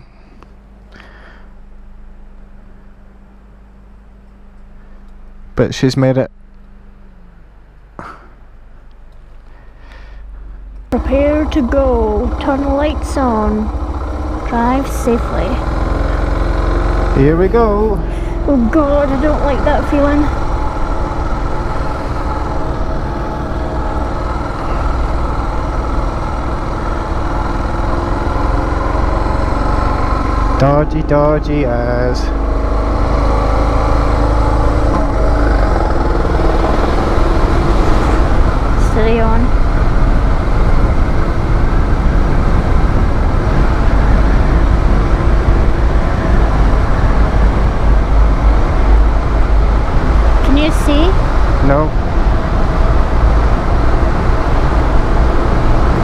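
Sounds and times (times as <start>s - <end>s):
motorcycle engine running: 0.0s - 56.0s
road rumble: 0.0s - 56.0s
wind rumble on microphone: 31.4s - 56.0s.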